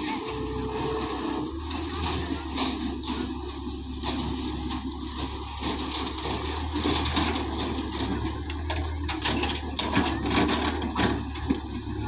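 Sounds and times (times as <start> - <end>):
tractor diesel engine running: 0.0 - 12.0
clatter: 4.0 - 11.8.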